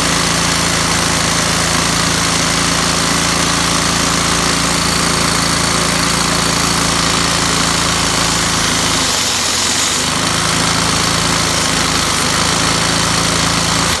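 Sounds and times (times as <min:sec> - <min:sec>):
humming motor: 0:03.4 - 0:14.0.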